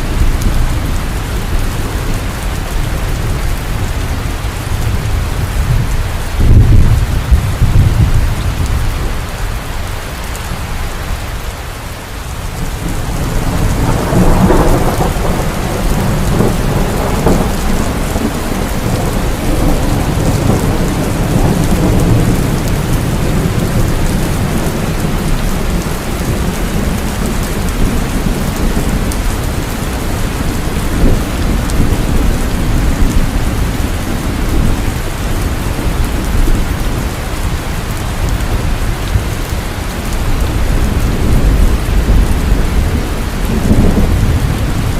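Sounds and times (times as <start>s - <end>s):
rolling thunder: 0.0s - 9.3s, 12.5s - 44.9s
heavy rain falling: 0.0s - 44.9s.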